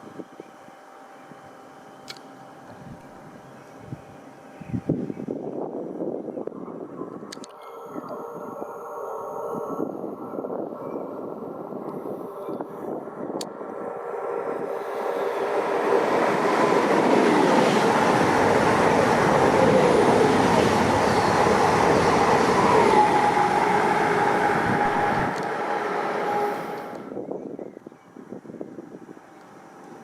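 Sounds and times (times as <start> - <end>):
train tonal whine: 0.0 - 30.0
train passing rail roar: 5.4 - 27.4.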